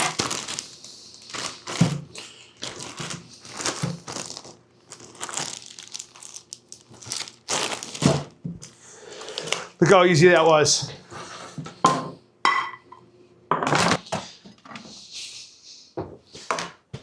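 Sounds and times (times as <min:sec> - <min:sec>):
vegetables crunching and crinkling: 0:00.0 - 0:09.8.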